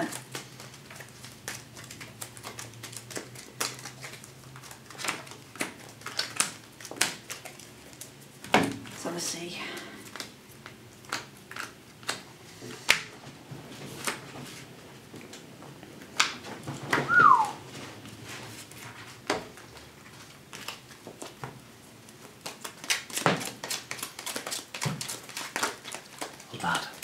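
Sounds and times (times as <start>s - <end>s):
short falling whine: 17.1s - 17.6s.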